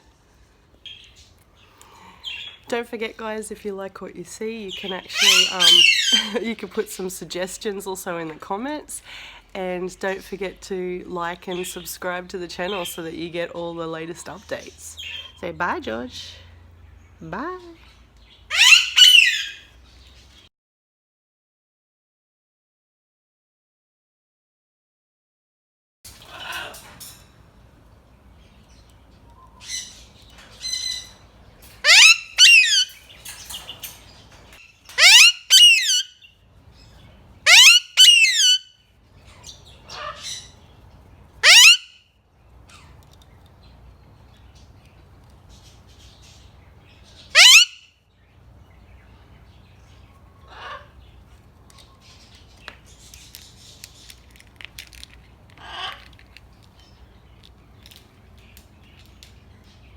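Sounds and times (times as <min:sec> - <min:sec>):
parrot screeching: 0:05.1 - 0:06.3, 0:18.5 - 0:19.7, 0:26.2 - 0:27.0, 0:31.8 - 0:33.2, 0:34.9 - 0:36.3, 0:37.4 - 0:38.8, 0:39.4 - 0:40.6, 0:41.4 - 0:42.0, 0:47.3 - 0:47.9, 0:50.5 - 0:51.0, 0:55.6 - 0:56.1.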